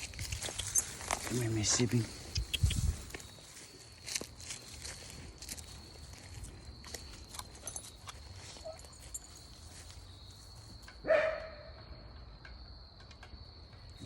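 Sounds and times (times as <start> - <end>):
dog barking: 11.0 - 11.7.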